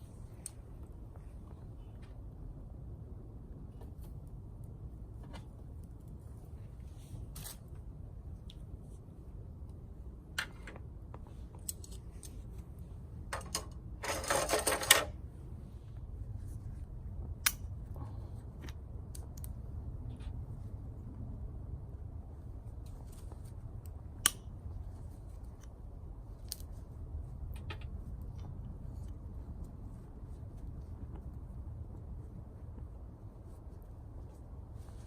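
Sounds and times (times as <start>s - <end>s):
low steady rumble: 0.0s - 35.0s
twigs clicking and snapping: 22.8s - 29.7s.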